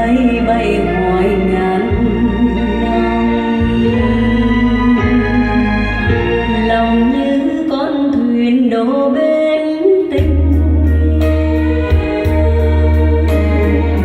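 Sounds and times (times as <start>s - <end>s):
deep bass: 0.0s - 7.7s, 10.2s - 14.0s
sustained instruments: 0.0s - 7.8s, 10.3s - 14.0s
person singing long wavering notes: 10.4s - 14.0s.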